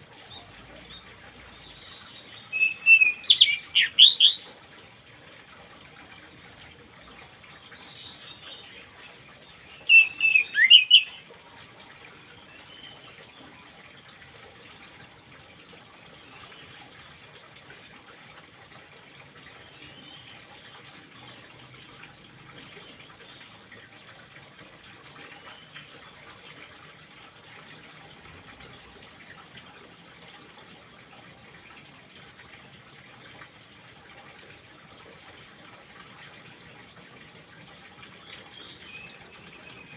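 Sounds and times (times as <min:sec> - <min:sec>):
bird chirping: 0:01.6 - 0:04.4, 0:09.6 - 0:11.2.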